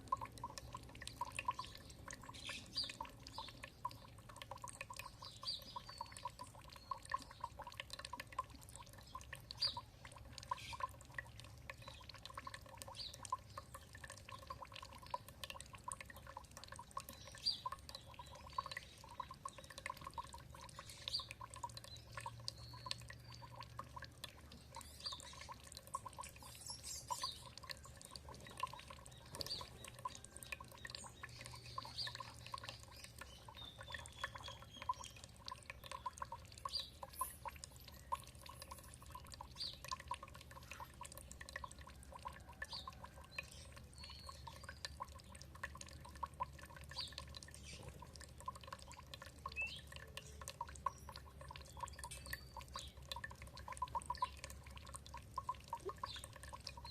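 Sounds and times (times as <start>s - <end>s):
water trickling and dripping: 0.0s - 56.9s
bird chirping: 1.4s - 4.1s, 4.9s - 7.6s, 24.6s - 38.2s, 49.4s - 53.0s.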